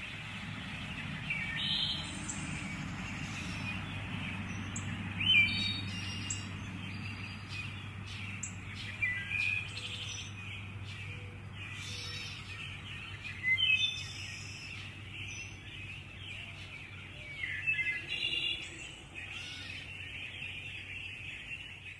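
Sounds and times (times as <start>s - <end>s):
songbirds singing: 0.0s - 21.9s.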